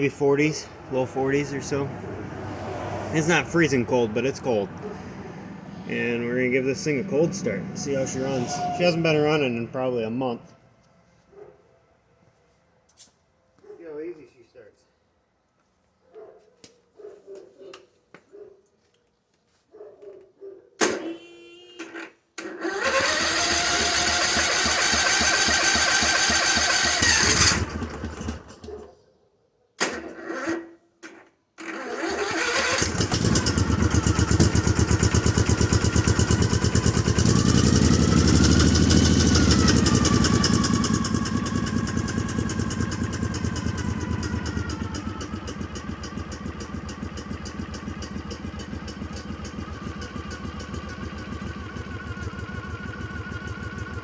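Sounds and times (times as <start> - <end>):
engine cranking: 22.4 - 28.7, 31.6 - 54.0
engine running and idling: 22.7 - 28.6, 32.5 - 54.0.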